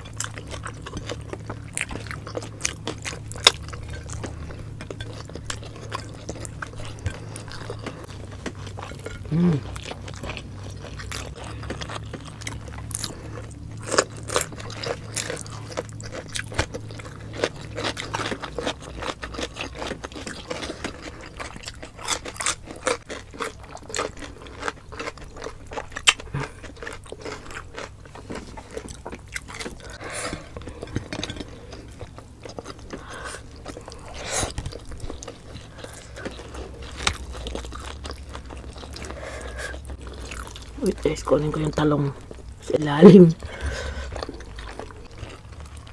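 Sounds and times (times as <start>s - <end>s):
cucumber crunching: 5.4s - 42.4s
person humming: 9.3s - 9.7s.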